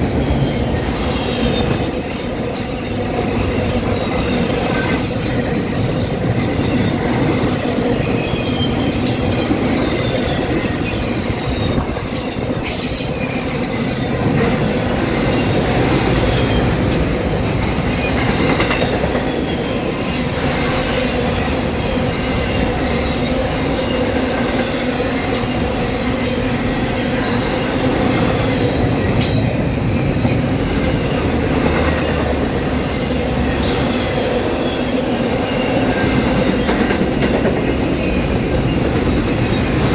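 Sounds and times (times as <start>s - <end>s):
train wheels rumbling on rail: 0.0s - 39.9s
rail joint clicks: 8.3s - 34.8s.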